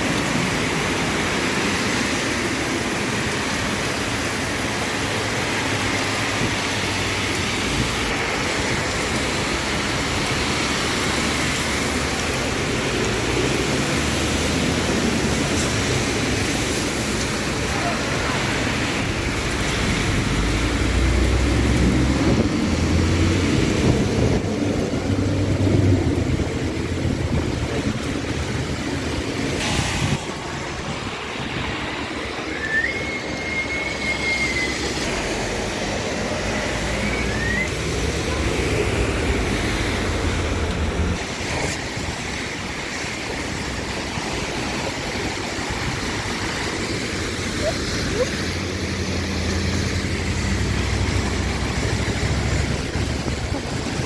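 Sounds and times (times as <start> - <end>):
short thin whistle: 32.5 - 34.9, 37.0 - 37.8.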